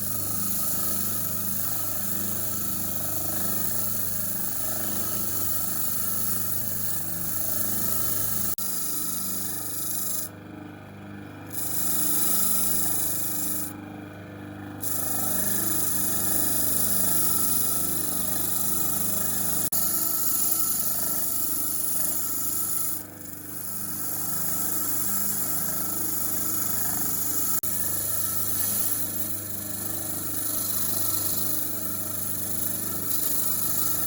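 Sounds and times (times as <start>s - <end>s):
power tool abrading hiss: 11.6s - 13.7s, 26.1s - 34.0s.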